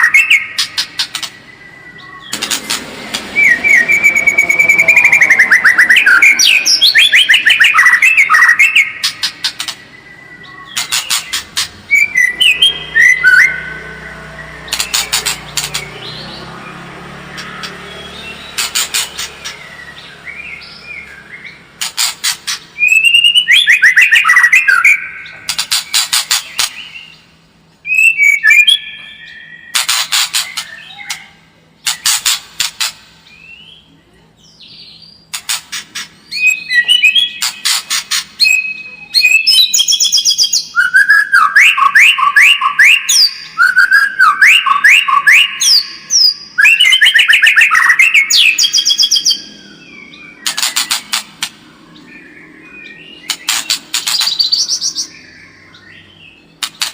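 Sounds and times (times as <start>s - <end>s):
shama singing: 2.9s - 8.2s.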